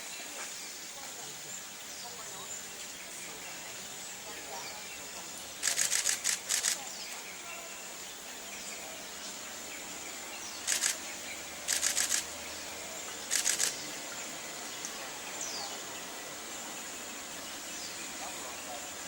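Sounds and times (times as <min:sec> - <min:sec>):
camera shutters firing in bursts: 0:05.6 - 0:06.9, 0:10.7 - 0:11.0, 0:11.7 - 0:12.3, 0:13.3 - 0:13.8.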